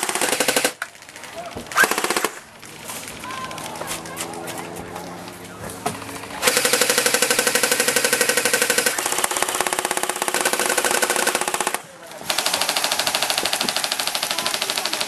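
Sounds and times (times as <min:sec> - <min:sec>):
airsoft gun firing bursts: 0:00.0 - 0:00.9, 0:01.8 - 0:02.5, 0:06.4 - 0:15.0.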